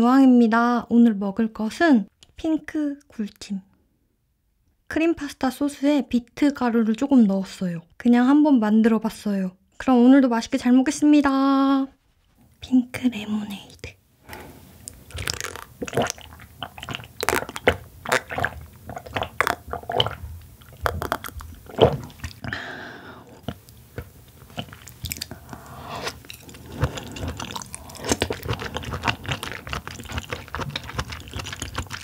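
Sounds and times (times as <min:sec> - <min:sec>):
person sipping drink: 0:14.2 - 0:32.0
chewing: 0:14.8 - 0:22.6, 0:23.3 - 0:32.0
mouth clicks and smacks: 0:14.8 - 0:22.6, 0:23.3 - 0:32.0.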